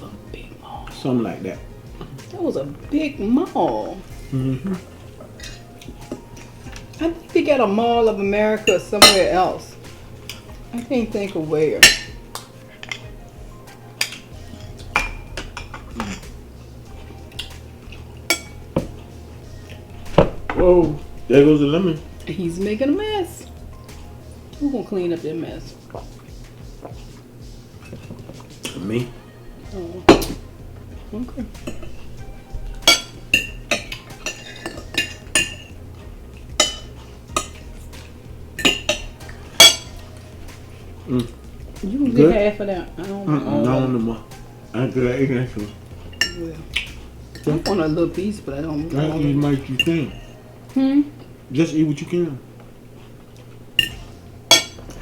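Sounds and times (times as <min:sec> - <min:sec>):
plates and cutlery clinking: 0:00.0 - 0:55.0.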